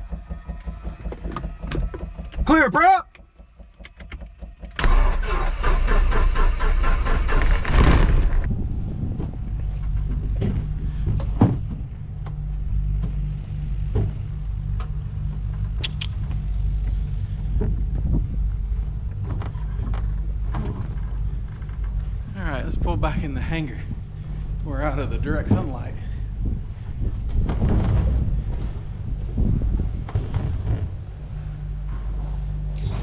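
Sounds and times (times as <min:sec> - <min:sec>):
aircraft engine running: 0:00.0 - 0:07.6, 0:08.2 - 0:33.0
engine starter cranking: 0:00.0 - 0:08.5.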